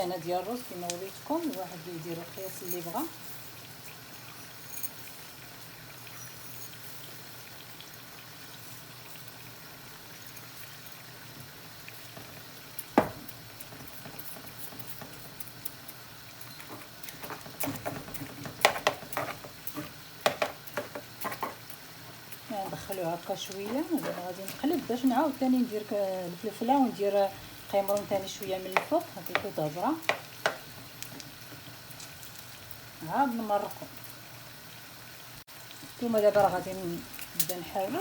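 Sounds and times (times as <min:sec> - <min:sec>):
broth simmering and bubbling: 0:00.0 - 0:38.0
utensil clattering on pan: 0:16.5 - 0:21.7, 0:28.6 - 0:31.7.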